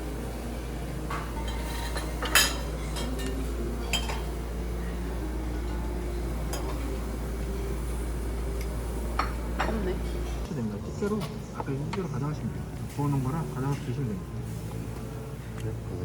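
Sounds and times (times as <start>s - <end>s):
restaurant background hum: 0.0s - 16.0s
dishes and utensils clinking: 1.0s - 4.5s, 5.6s - 7.0s, 8.5s - 12.2s.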